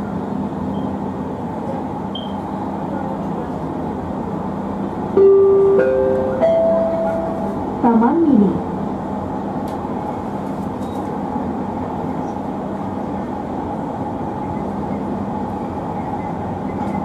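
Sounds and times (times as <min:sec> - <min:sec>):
train rolling rumble: 0:00.0 - 0:17.0
steady electric hum: 0:04.2 - 0:10.3.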